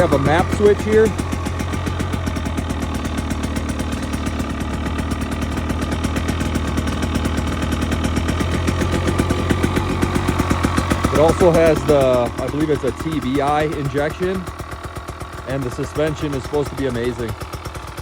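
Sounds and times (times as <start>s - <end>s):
two-stroke engine idling: 0.0s - 18.0s.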